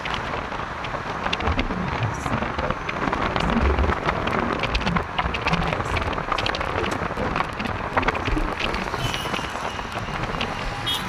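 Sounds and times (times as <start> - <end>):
low rumble: 0.0 - 11.0
rain hissing on a street: 0.0 - 11.0
raindrop ticks: 0.0 - 11.0.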